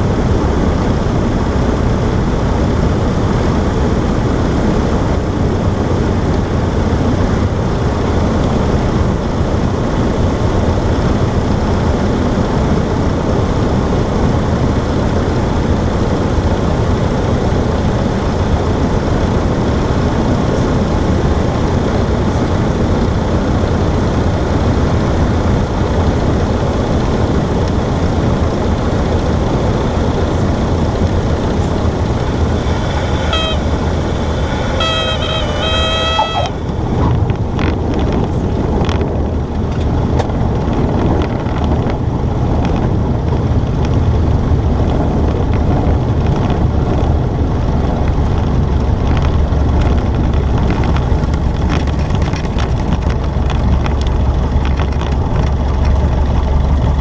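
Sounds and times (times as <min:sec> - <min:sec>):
airplane engine droning: 0:00.0 - 0:57.0.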